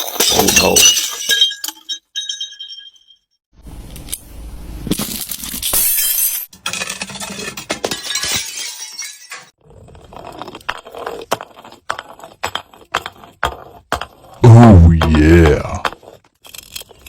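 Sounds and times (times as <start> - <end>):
glass bottle shattering: 0.0 - 3.3, 4.9 - 6.6, 7.7 - 9.6
glass crunching and clinking: 0.0 - 3.3, 5.0 - 11.9, 16.2 - 17.0.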